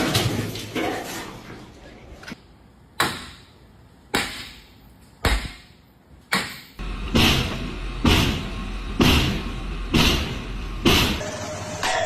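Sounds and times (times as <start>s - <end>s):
steady low hum: 2.0s - 11.9s.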